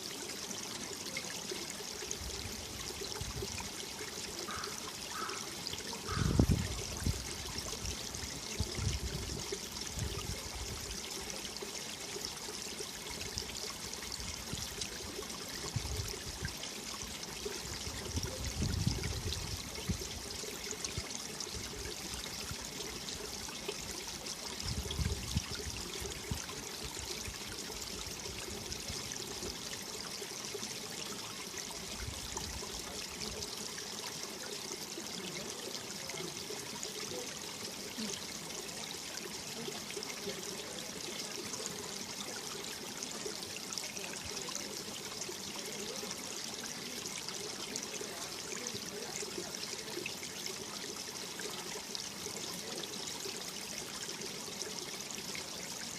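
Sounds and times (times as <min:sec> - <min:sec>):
stream rushing over rocks: 0:00.0 - 0:55.9
wind rumbling on microphone: 0:06.1 - 0:07.2, 0:18.2 - 0:19.6, 0:24.7 - 0:25.5.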